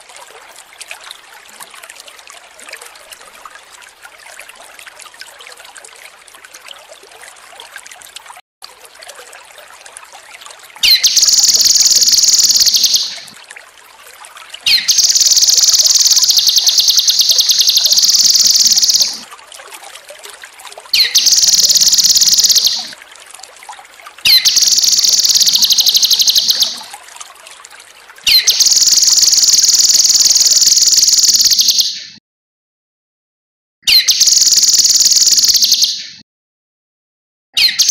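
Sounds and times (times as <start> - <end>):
faint trickling water: 0.0 - 31.9, 33.9 - 35.8
songbird trilling: 10.8 - 13.3, 14.7 - 19.2, 21.0 - 22.9, 24.3 - 26.8, 28.3 - 32.0, 33.9 - 36.1.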